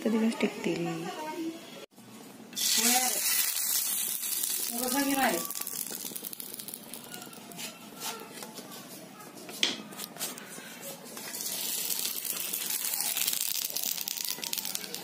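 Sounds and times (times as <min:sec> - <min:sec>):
food sizzling in hot oil: 0:02.6 - 0:07.6, 0:11.2 - 0:15.0.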